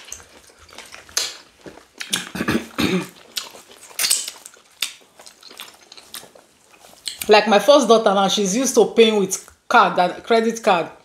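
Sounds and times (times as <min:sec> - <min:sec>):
wet chewing and lip smacks: 0:00.0 - 0:07.4.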